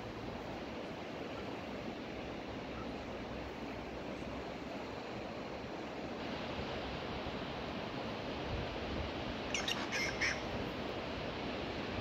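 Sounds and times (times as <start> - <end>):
bird squawking: 9.5 - 10.5.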